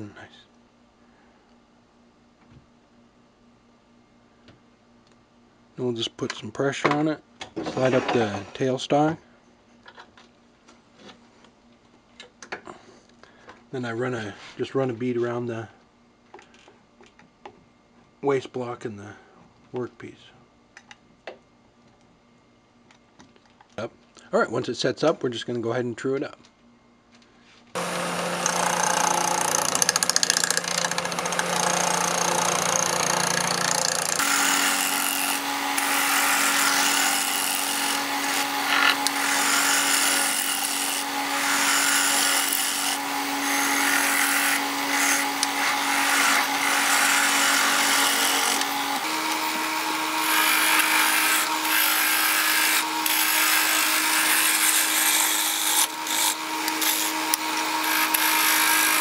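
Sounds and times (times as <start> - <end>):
lathe motor hum: 27.8 - 59.0
lathe tool rasping wood: 27.8 - 59.0.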